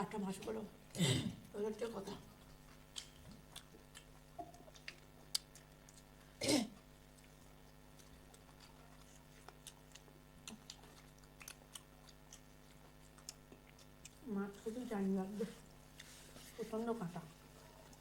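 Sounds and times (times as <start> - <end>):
faint steady hum: 0.0 - 18.0
person chewing food: 2.3 - 14.7.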